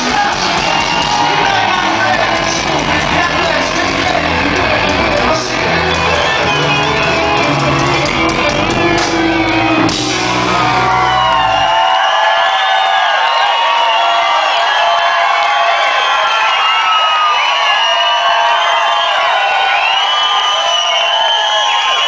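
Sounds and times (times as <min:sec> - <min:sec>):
rock band playing live: 0:00.0 - 0:12.0
crowd shouting and cheering: 0:00.0 - 0:22.0.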